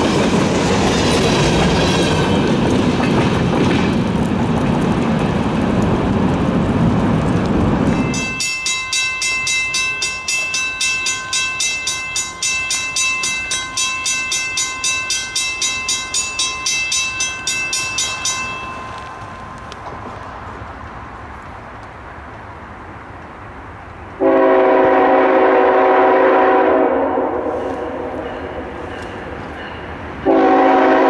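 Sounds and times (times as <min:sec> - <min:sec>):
distant train rumble: 0:00.0 - 0:31.0
freight train rumbling past: 0:00.0 - 0:31.0
bell ringing rapidly: 0:08.0 - 0:19.4.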